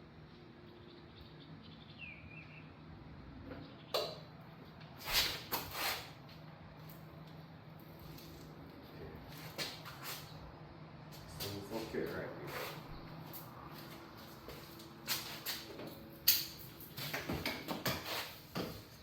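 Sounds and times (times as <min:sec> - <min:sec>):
short rustling scrapes: 0:05.0 - 0:06.2, 0:11.8 - 0:12.9.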